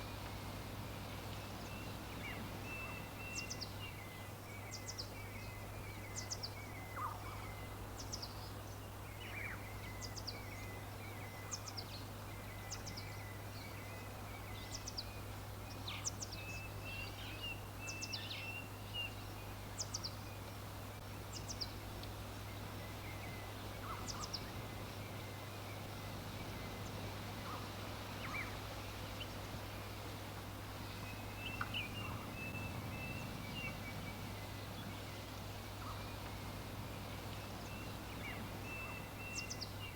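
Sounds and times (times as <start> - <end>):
background hiss: 0.0 - 39.9
small birds chirping: 15.7 - 39.9.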